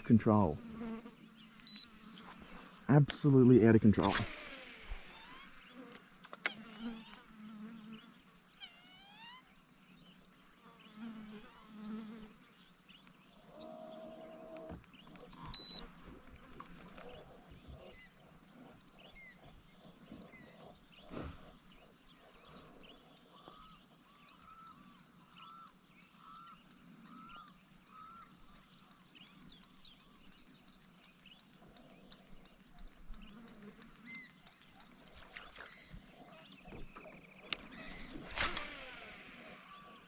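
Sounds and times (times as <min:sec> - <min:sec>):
flies buzzing: 0:00.0 - 0:40.0
short gliding calls: 0:01.6 - 0:07.3, 0:34.0 - 0:40.0.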